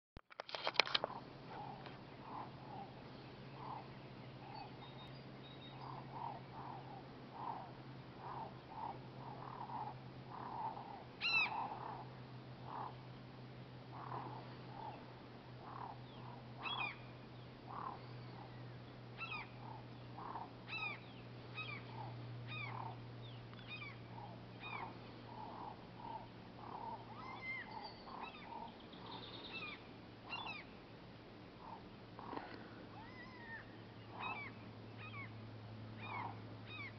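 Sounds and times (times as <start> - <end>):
birds calling: 0.5 - 36.9
low hum: 0.7 - 36.9.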